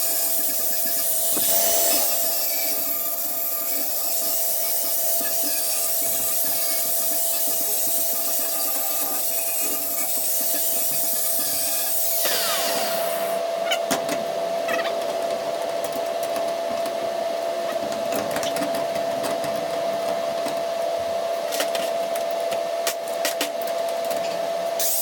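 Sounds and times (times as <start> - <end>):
electric grinder whining: 0.0 - 13.4.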